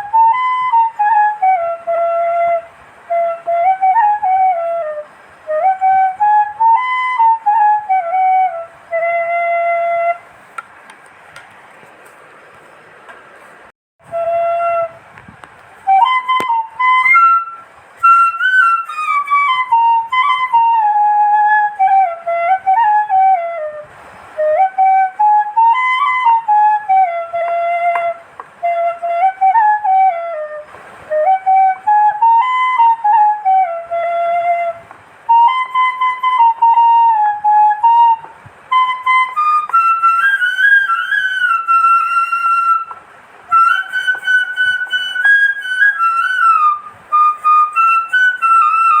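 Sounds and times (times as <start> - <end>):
solo flute melody: 0.0 - 10.6, 14.0 - 49.0.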